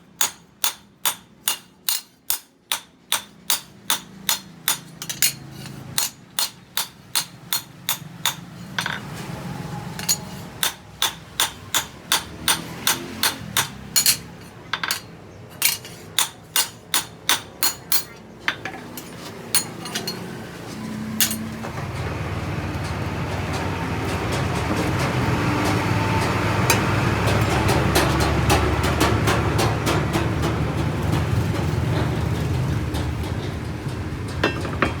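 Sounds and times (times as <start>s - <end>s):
hammer striking steel: 0.1s - 9.1s, 9.9s - 20.4s, 21.2s - 21.5s.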